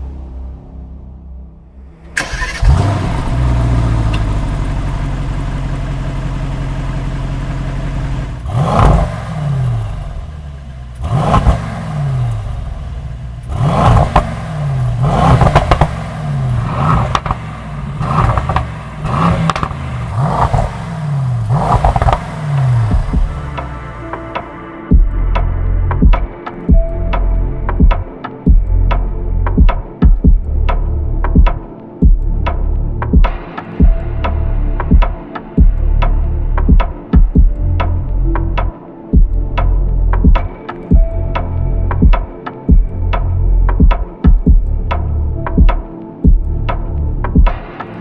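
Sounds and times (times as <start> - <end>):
car engine starting and revving: 1.8 - 24.3.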